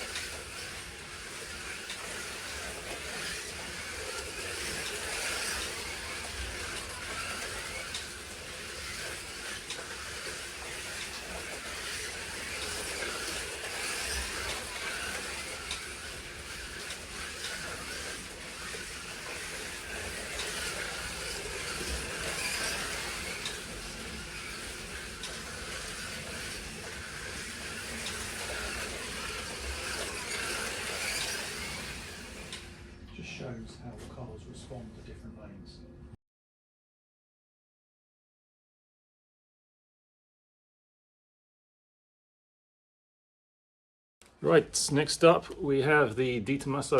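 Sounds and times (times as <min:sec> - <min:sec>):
slot cars whirring: 0:00.0 - 0:33.6.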